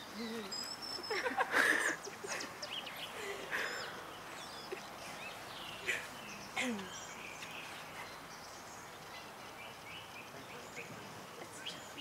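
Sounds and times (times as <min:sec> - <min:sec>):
birds chirping and calling: 0:00.0 - 0:12.0
steady outdoor hiss: 0:00.0 - 0:12.0.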